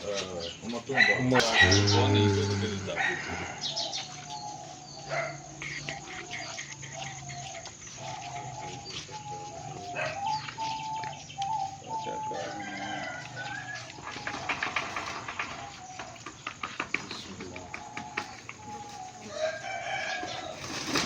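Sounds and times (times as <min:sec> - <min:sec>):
rooster crowing: 0:00.9 - 0:04.1, 0:11.6 - 0:16.2, 0:18.2 - 0:20.6.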